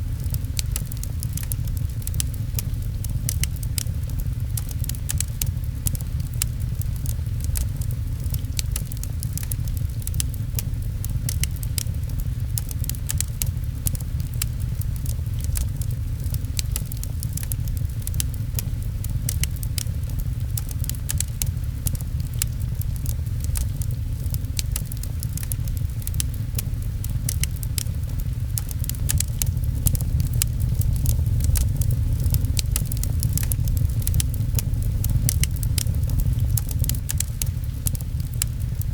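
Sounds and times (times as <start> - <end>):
fireplace crackling and popping: 0.0 - 38.9
rain pattering on a window: 0.0 - 38.9
steady low rumble: 0.0 - 38.9.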